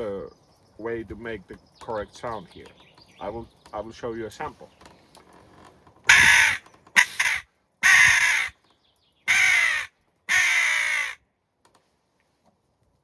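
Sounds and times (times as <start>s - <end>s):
crow call caws: 6.1s - 8.6s, 9.3s - 11.2s.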